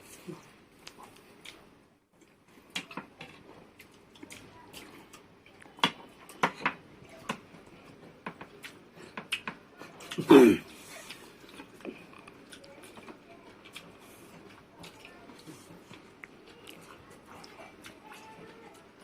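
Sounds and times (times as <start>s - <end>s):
eating clicks and taps: 8.2s - 9.6s.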